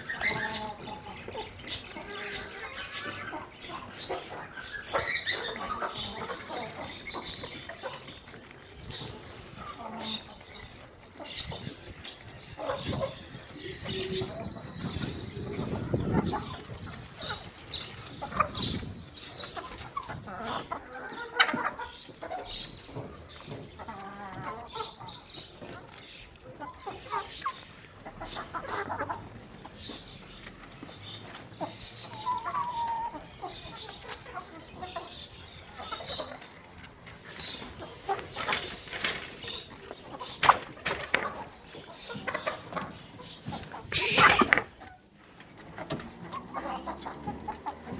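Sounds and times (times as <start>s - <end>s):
chickens clucking: 0.0s - 47.9s
sharp noises: 43.8s - 44.8s.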